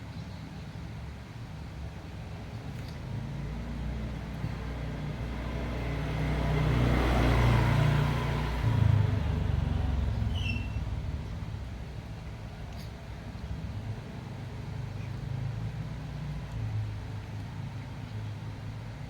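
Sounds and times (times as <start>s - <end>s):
vehicle engine passing close: 3.2s - 17.0s.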